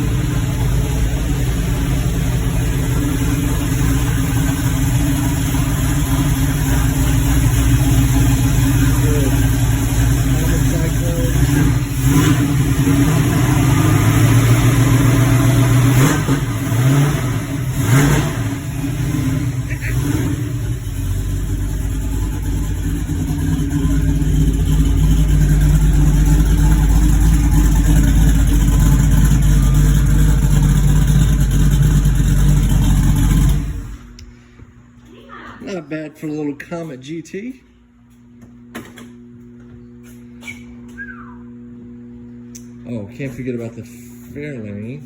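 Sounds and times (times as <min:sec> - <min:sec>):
car engine revving and idling: 0:00.0 - 0:34.4.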